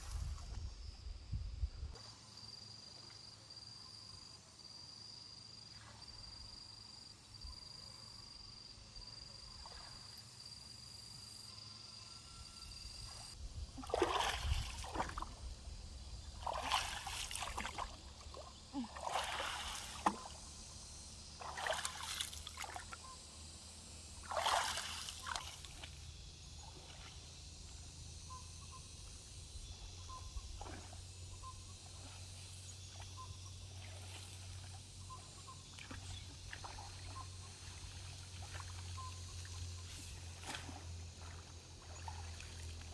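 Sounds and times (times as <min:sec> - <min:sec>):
high insect trill: 0:00.0 - 0:42.9
water sloshing and splashing: 0:13.8 - 0:20.7, 0:21.3 - 0:23.0, 0:24.2 - 0:27.8, 0:30.5 - 0:31.2, 0:35.6 - 0:42.9.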